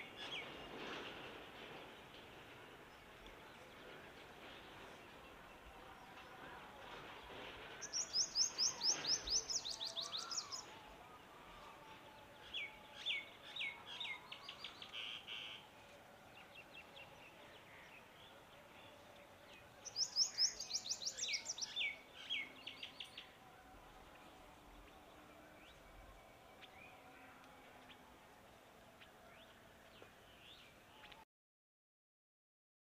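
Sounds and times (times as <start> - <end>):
songbird singing: 7.8 - 31.2.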